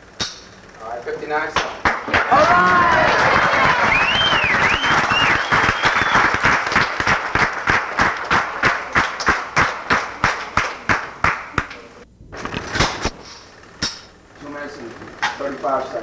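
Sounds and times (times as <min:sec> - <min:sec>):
people clapping in rhythm: 0:01.6 - 0:11.8
noisy crowd: 0:02.0 - 0:12.0.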